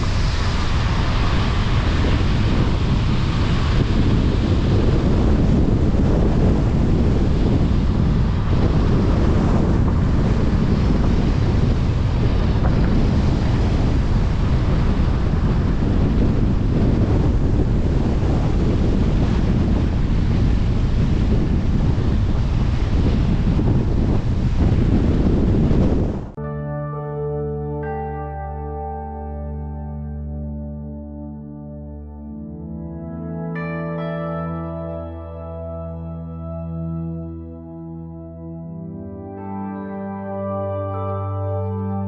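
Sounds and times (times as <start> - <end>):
loud rushing noise: 0.0 - 26.4
wind buffeting microphone: 0.0 - 26.4.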